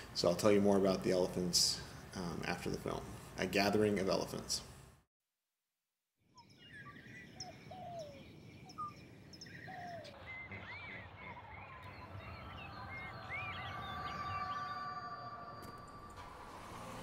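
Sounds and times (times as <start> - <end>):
steady outdoor hiss: 0.0 - 5.0
birds chirping and whistling: 6.4 - 16.2.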